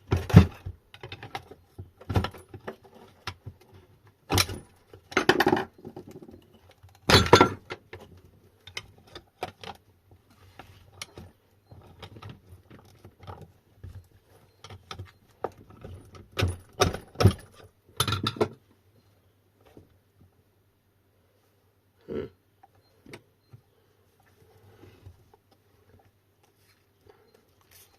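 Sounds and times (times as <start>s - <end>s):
metal tools clinking and clattering: 4.4s - 7.8s.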